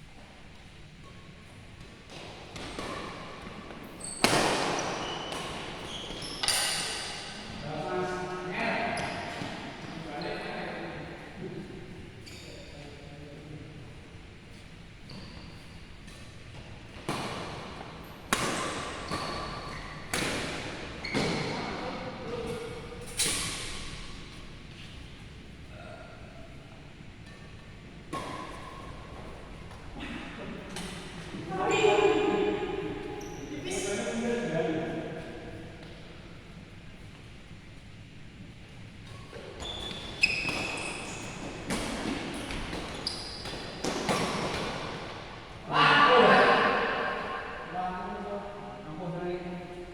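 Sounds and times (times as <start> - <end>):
shoes squeaking on court: 1.0 - 7.5, 8.9 - 10.4, 12.2 - 12.9, 15.0 - 25.1, 33.0 - 34.3, 39.0 - 45.3
rackets hitting shuttlecock: 18.3 - 21.5
racket hitting shuttlecock: 18.3 - 21.8, 41.4 - 45.2.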